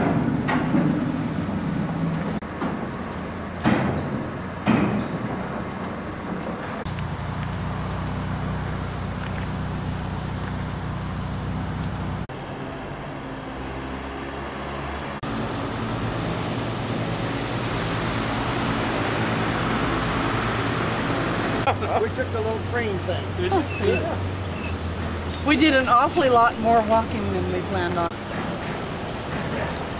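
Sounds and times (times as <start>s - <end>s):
engine humming: 0.0s - 29.9s.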